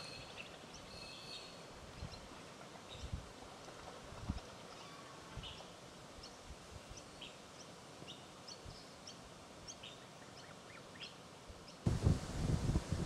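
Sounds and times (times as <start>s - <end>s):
small birds chirping: 0.0s - 3.8s, 4.6s - 11.9s
faint outdoor background noise: 0.0s - 13.0s
low rustling noise: 1.6s - 9.6s, 11.4s - 13.0s.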